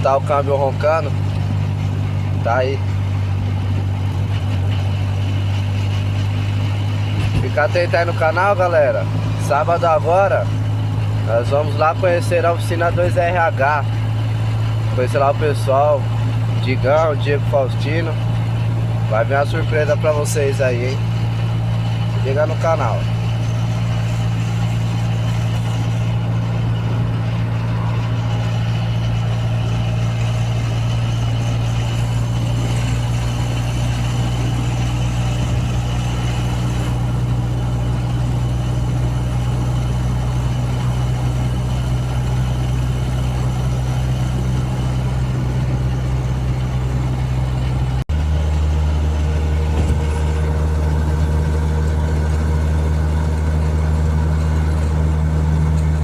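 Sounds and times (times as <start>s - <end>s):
car engine humming steadily: 0.0s - 56.0s.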